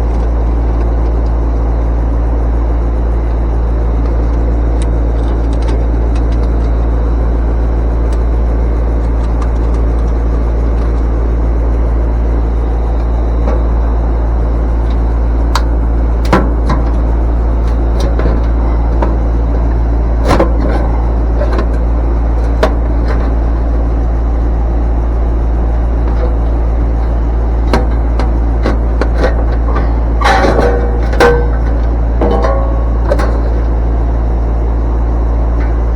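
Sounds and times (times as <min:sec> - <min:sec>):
low machine hum: 0:00.0 - 0:35.9.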